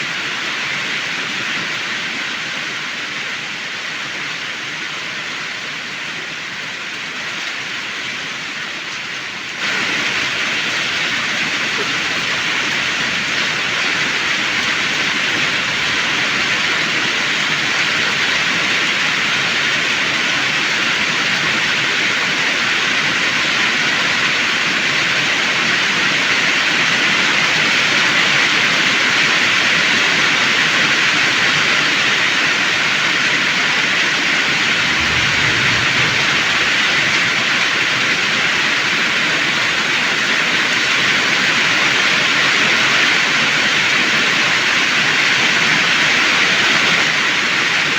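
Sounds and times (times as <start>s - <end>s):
low rumble: 34.4s - 38.4s
heavy rain pouring: 34.4s - 39.0s.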